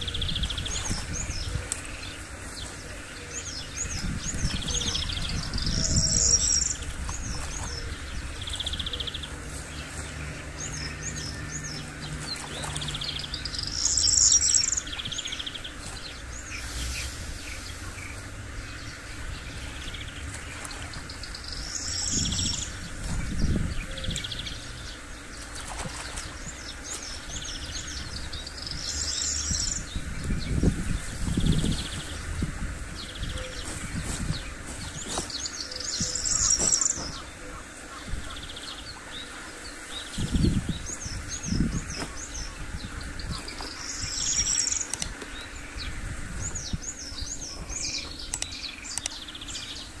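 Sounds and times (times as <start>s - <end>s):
low rumbling noise: 0.0s - 25.3s
small birds singing: 0.0s - 50.0s
sharp ticks: 48.3s - 49.2s.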